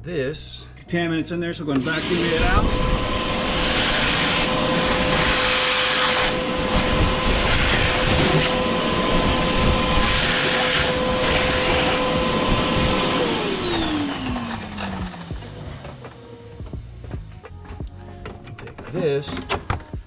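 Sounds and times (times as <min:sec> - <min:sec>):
vacuum cleaner running: 0:01.7 - 0:17.2
vacuum motor spinning down: 0:01.8 - 0:16.3.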